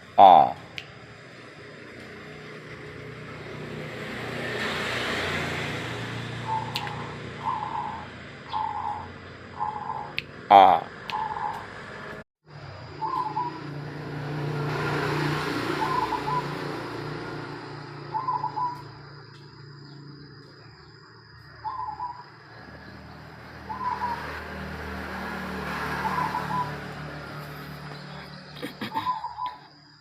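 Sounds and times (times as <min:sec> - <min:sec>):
dove cooing: 0:06.4 - 0:11.6, 0:15.7 - 0:16.7, 0:18.0 - 0:18.9, 0:25.9 - 0:26.8, 0:28.4 - 0:29.6.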